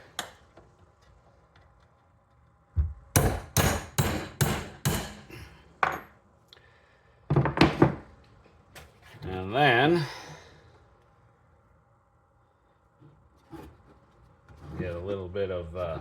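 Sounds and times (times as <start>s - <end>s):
hammer strikes: 3.1s - 6.0s.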